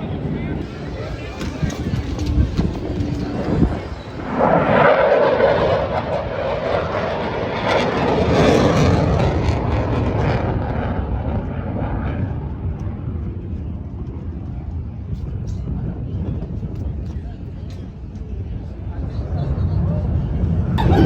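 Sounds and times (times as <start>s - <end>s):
aircraft flying past: 0.0s - 14.4s, 18.9s - 21.0s.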